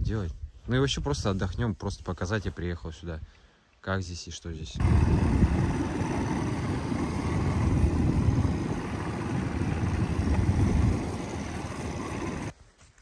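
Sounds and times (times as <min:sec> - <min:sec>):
wind buffeting microphone: 0:04.8 - 0:12.5.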